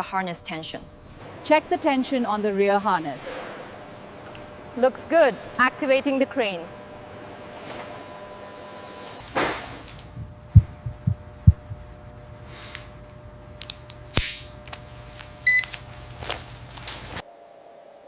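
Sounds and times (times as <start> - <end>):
steady hum: 0.0 - 17.6
deep heartbeat-like thumps: 10.1 - 12.1.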